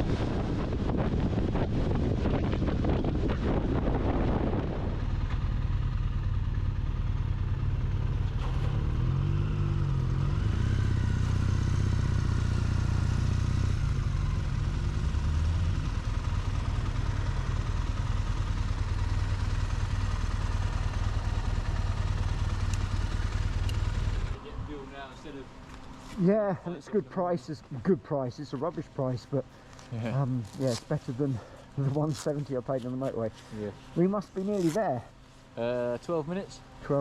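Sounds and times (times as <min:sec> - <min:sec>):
motorcycle engine running: 0:00.0 - 0:24.9
road and wind noise: 0:00.0 - 0:37.0.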